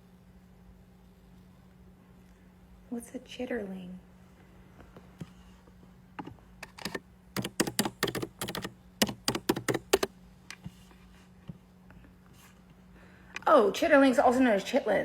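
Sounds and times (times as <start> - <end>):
keyboard key taps: 6.9 - 10.1.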